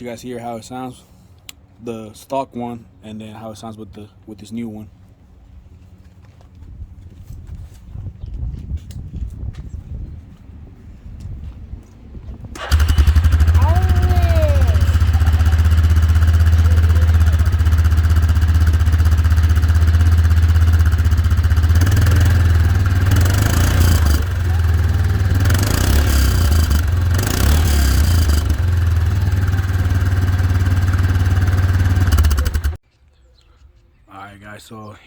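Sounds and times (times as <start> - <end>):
atv engine idling and revving: 12.6 - 32.8.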